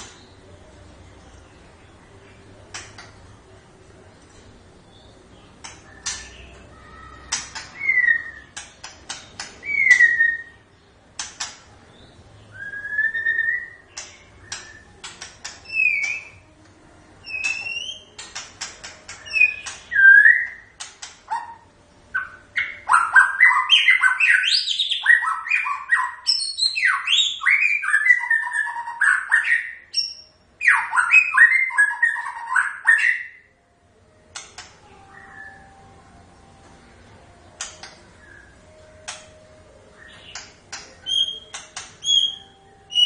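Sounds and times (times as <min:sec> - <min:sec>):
bird sharp clicks: 0:02.7 - 0:03.2, 0:05.6 - 0:06.4, 0:08.5 - 0:10.1, 0:13.9 - 0:16.3, 0:34.3 - 0:34.8, 0:37.6 - 0:38.0, 0:40.3 - 0:42.2
bird whistling song: 0:05.8 - 0:10.7, 0:12.4 - 0:16.4, 0:17.2 - 0:18.4, 0:19.1 - 0:33.5, 0:34.4 - 0:35.7, 0:37.6 - 0:39.2, 0:40.0 - 0:43.0.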